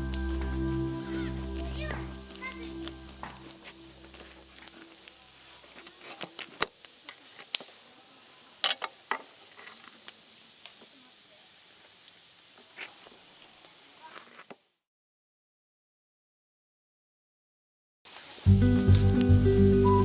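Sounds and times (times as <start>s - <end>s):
wood fire crackling and popping: 0.0s - 11.0s, 18.1s - 19.8s.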